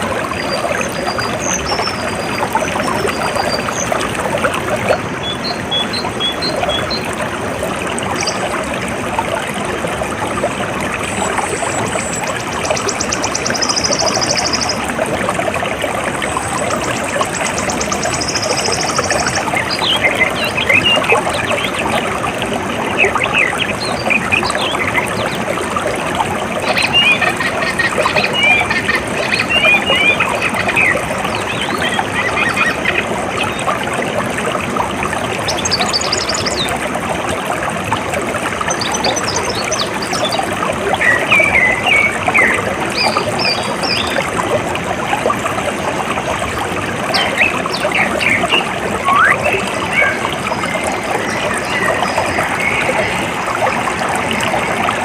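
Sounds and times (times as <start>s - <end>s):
water trickling: 0.0s - 55.0s
birds chirping: 11.1s - 14.9s, 16.3s - 22.0s, 26.6s - 33.6s, 47.1s - 55.0s.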